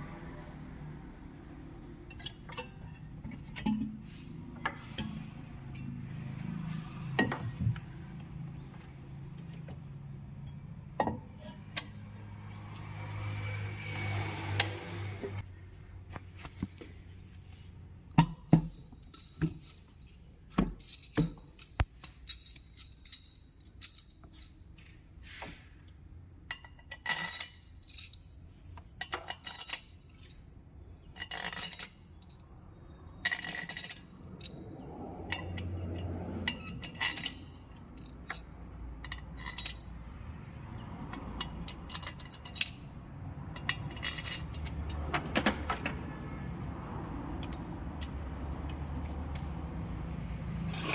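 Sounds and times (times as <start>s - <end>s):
metal tools clinking: 2.0s - 6.0s, 18.3s - 24.7s, 26.5s - 28.3s, 28.9s - 30.4s, 31.1s - 32.5s, 33.2s - 40.0s, 41.1s - 45.1s.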